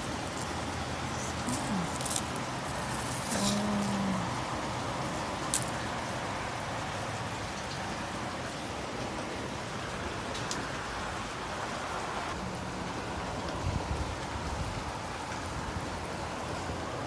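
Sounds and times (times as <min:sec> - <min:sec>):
hail pellets ticking: 0:00.0 - 0:06.2
hail and rain hissing: 0:00.0 - 0:11.6.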